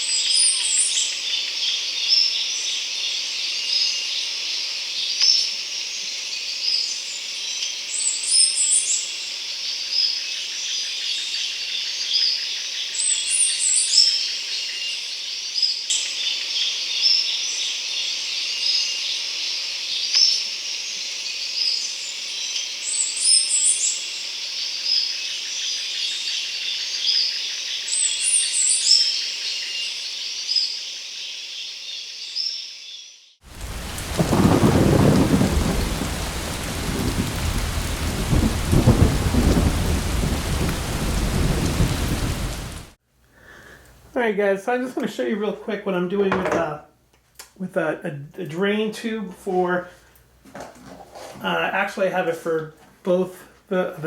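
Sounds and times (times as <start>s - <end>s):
insects trilling: 0.2s - 42.8s
birds chirping: 33.5s - 42.9s.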